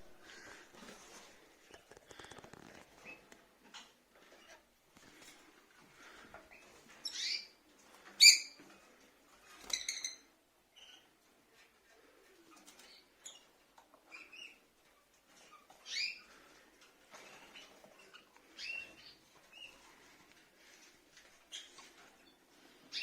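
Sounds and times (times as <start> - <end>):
faint rustling and scratching: 0.0 - 23.0
lovebirds chirping: 6.5 - 7.6, 15.4 - 16.3, 17.5 - 19.9.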